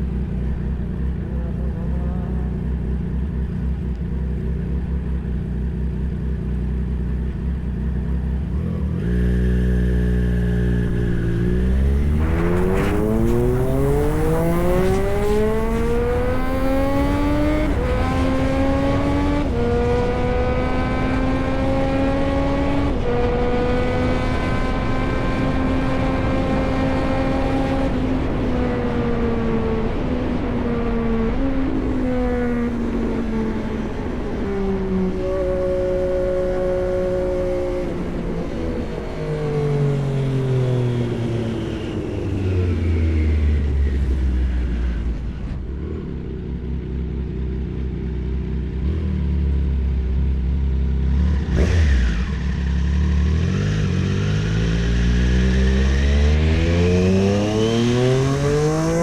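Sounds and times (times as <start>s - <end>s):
gear changes: 0.0s - 49.8s
motorcycle engine revving: 0.0s - 59.0s.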